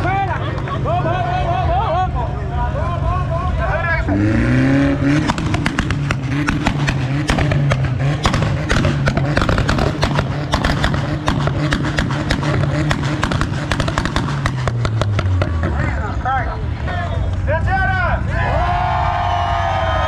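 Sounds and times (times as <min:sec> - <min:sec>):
exhaust pops and crackles: 0:00.0 - 0:01.0, 0:03.8 - 0:17.8
car engine running: 0:00.0 - 0:20.0.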